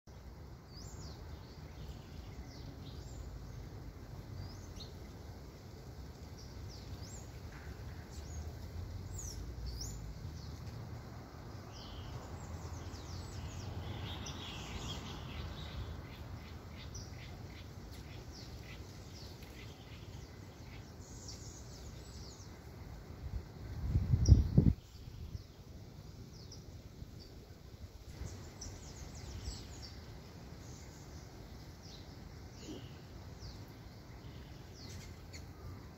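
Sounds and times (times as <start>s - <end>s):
birds chirping and calling: 28.1s - 35.9s.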